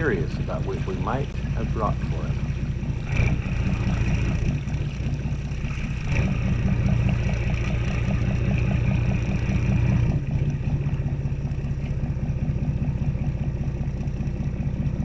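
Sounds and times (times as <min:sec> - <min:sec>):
motorboat engine pulsing: 0:00.0 - 0:15.0.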